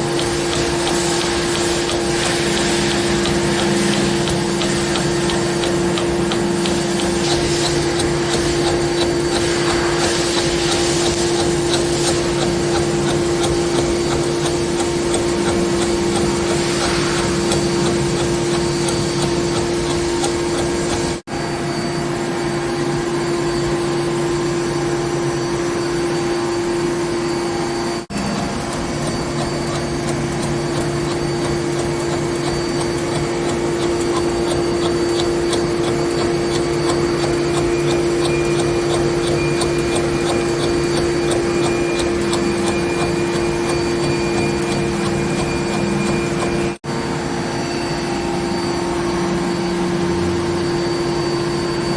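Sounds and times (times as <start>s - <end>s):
machine tool cutting steel: 0.0s - 21.2s, 28.1s - 46.8s
regular ticks: 0.0s - 21.2s, 28.1s - 46.8s.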